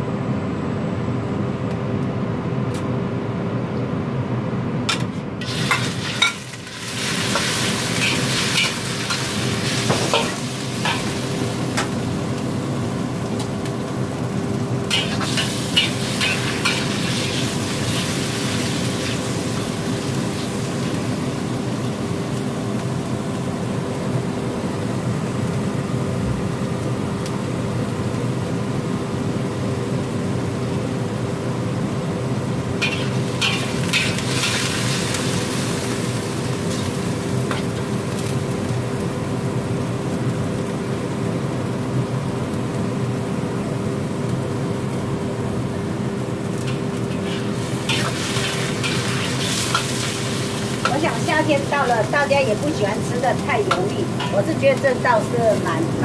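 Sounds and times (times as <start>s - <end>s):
steady hum: 0.0s - 39.9s, 44.6s - 56.0s
chicken sizzling in a wok: 5.4s - 56.0s
metal spatula scraping a wok: 14.9s - 18.0s, 32.8s - 34.7s, 46.7s - 50.8s.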